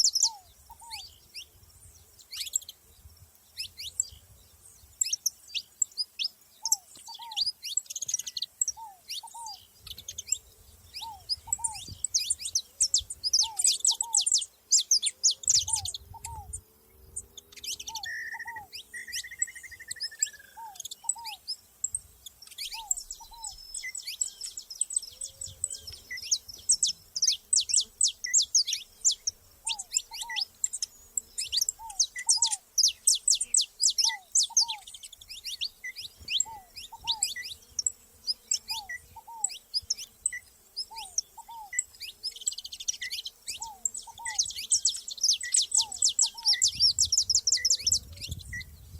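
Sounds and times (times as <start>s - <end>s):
finches chirping and singing: 0.0s - 48.9s.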